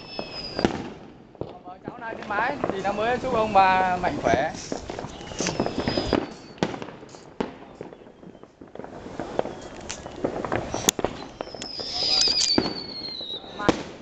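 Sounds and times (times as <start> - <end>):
high falling whistle: 0.0 - 0.8, 5.0 - 6.7, 9.3 - 13.7
fireworks bangs and pops: 0.0 - 14.0.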